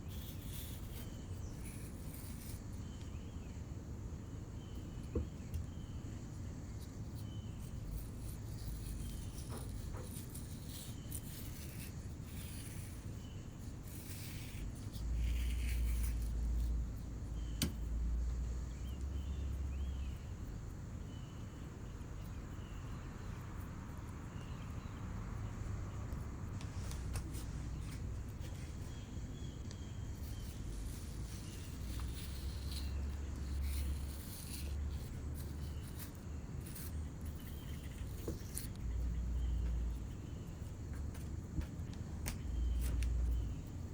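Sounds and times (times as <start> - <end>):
hands rubbing clay: 0.0 - 3.3, 6.7 - 18.0, 23.8 - 43.8.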